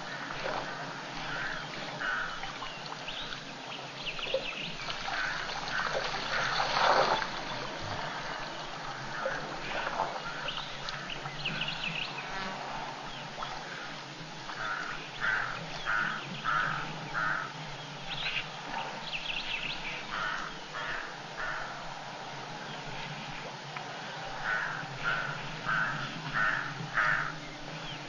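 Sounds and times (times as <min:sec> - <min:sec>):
bird harsh rasping calls: 0:24.4 - 0:27.4.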